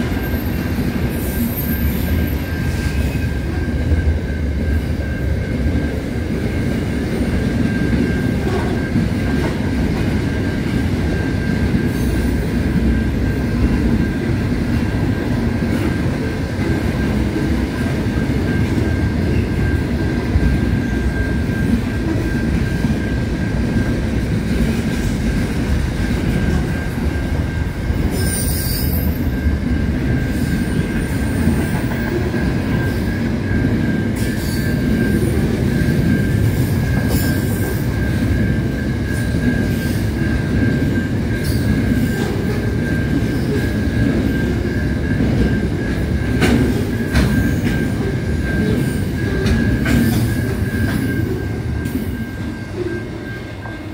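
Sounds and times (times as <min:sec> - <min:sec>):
train wheels rumbling on rail: 0:00.0 - 0:53.9
wheel squeal: 0:28.1 - 0:29.3.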